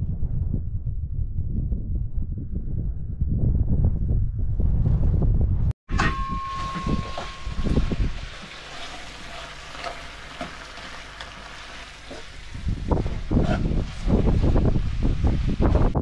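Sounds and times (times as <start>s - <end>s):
low hum: 0.0s - 15.3s
spatula scraping a pan: 6.0s - 15.5s
food sizzling in a frying pan: 6.6s - 15.9s.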